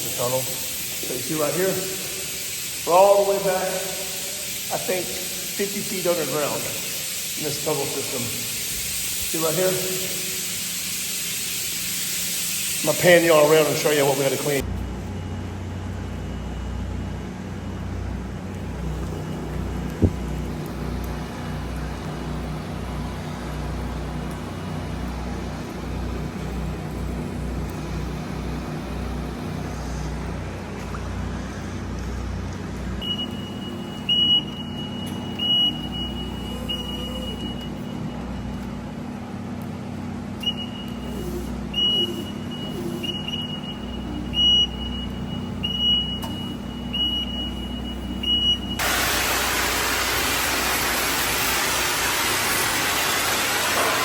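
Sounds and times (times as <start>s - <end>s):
loud steady hiss: 0.0s - 14.6s, 48.8s - 54.0s
machinery hum: 0.0s - 54.0s.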